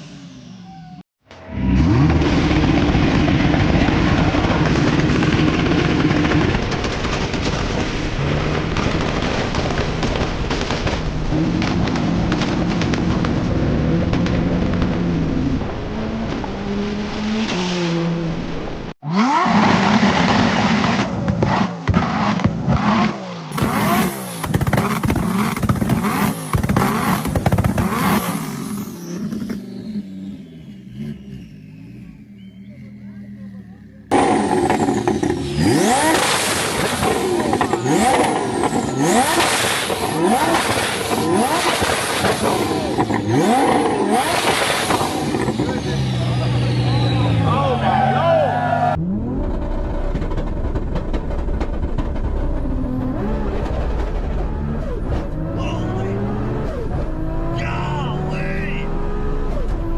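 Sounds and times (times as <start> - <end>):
exhaust pops and bangs: 1.3 - 16.6, 19.5 - 28.6, 34.1 - 46.3, 49.2 - 55.8
car engine running: 18.3 - 59.9.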